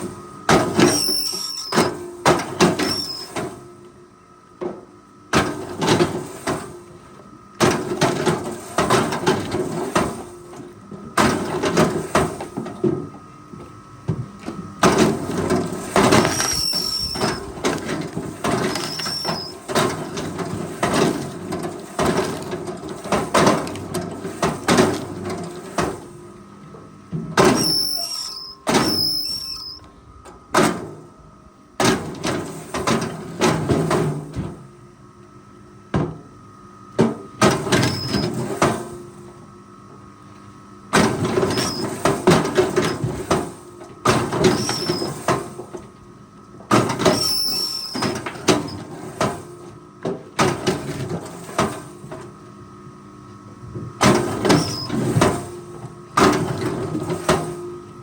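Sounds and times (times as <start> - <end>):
high squeal: 0.9 - 1.9, 2.8 - 3.3, 16.2 - 17.5, 18.7 - 19.6, 27.6 - 29.9.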